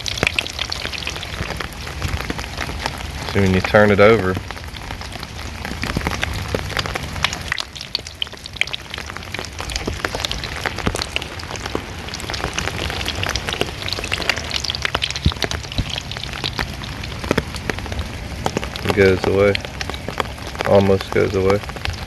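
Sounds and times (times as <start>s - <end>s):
rain falling on a surfboard: 0.0s - 22.0s
crackle of sharp snaps and pops: 5.8s - 20.8s.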